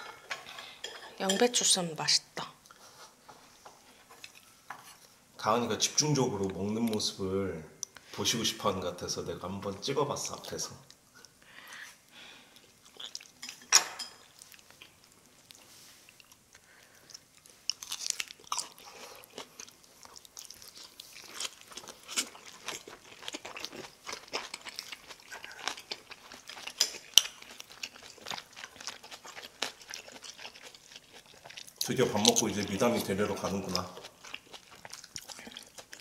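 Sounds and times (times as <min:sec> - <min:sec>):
person chewing: 0:12.5 - 0:36.0.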